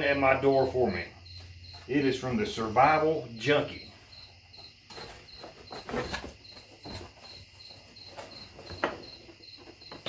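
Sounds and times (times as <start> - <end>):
cricket chirping: 0.0 - 10.0
handling clicks and rustles: 4.6 - 10.0.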